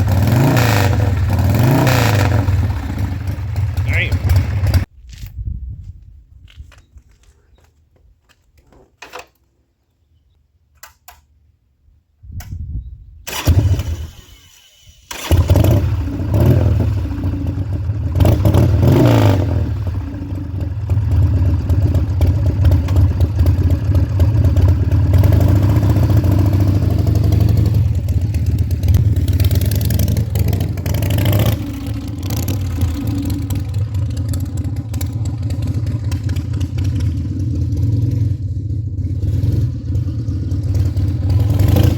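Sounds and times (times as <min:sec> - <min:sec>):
motorcycle engine revving: 0:00.0 - 0:04.9, 0:15.1 - 0:41.9
motorcycle engine rumbling: 0:00.0 - 0:09.2, 0:15.1 - 0:41.9
motorcycle engine cranking: 0:13.3 - 0:18.8, 0:21.1 - 0:41.9.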